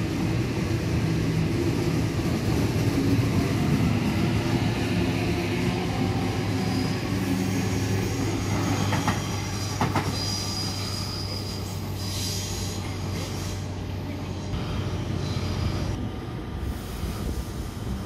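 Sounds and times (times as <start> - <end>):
electric train passing: 0.0 - 18.0
high wheel squeal: 6.6 - 12.8.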